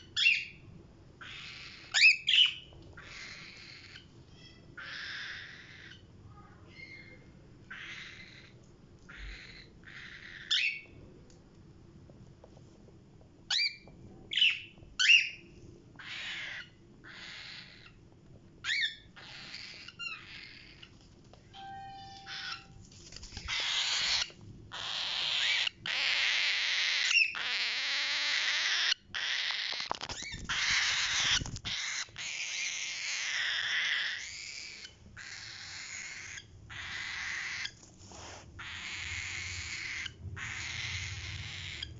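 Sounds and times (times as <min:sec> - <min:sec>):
parrot chirps: 0:01.2 - 0:06.1, 0:06.7 - 0:10.9, 0:21.6 - 0:22.8, 0:23.4 - 0:37.8, 0:38.6 - 0:41.9
parrots screeching harshly: 0:01.2 - 0:06.1, 0:06.8 - 0:10.8, 0:16.0 - 0:18.0, 0:18.7 - 0:20.8, 0:22.2 - 0:22.8, 0:23.4 - 0:37.8, 0:38.6 - 0:41.9
parrot whistle: 0:21.6 - 0:22.8.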